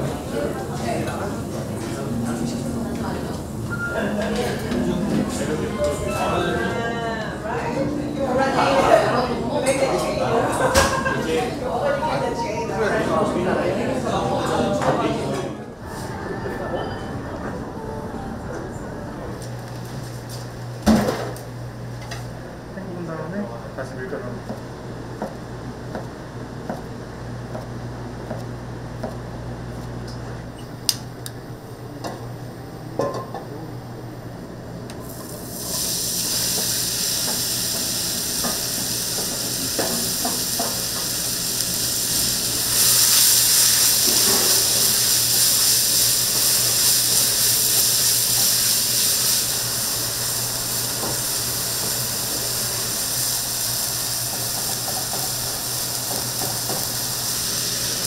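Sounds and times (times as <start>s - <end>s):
food sizzling in a pan: 35.0s - 58.0s.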